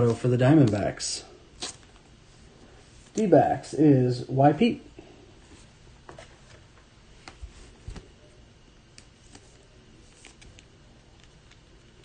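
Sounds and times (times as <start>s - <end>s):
trading cards and packaging handled: 0.0s - 1.0s, 8.9s - 12.0s.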